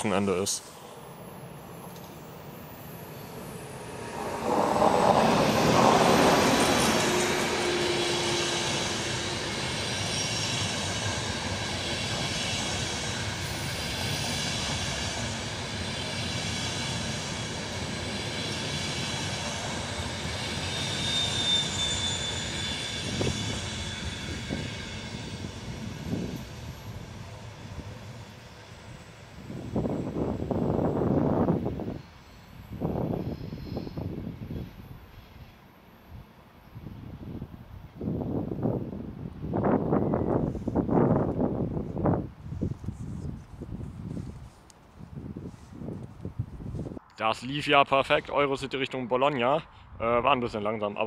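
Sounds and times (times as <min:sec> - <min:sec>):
train wheels rumbling on rail: 0:00.6 - 0:47.1
thin high squeal: 0:20.7 - 0:24.5, 0:32.0 - 0:34.0.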